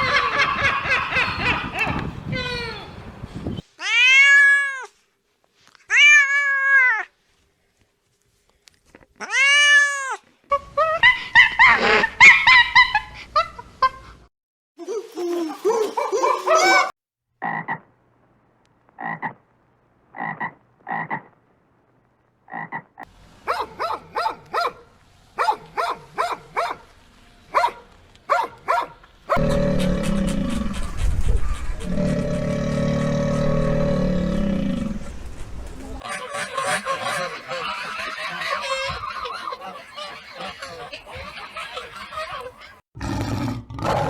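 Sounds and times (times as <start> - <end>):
animal calls: 27.5 - 35.4, 36.0 - 42.8
loud low-pitched animal call: 29.3 - 36.0.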